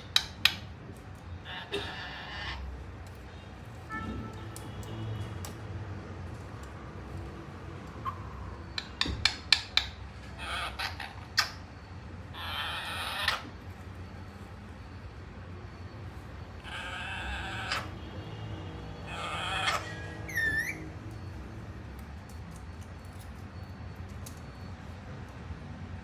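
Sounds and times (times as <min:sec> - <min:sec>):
parrot raspy calls: 0:01.4 - 0:02.8, 0:08.0 - 0:13.8, 0:16.5 - 0:18.1, 0:18.9 - 0:21.4.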